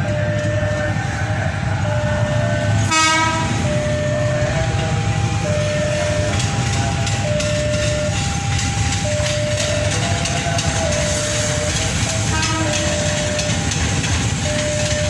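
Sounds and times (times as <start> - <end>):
train rumbling: 0.0 - 15.0
train horn blast: 2.8 - 3.7, 12.2 - 13.4.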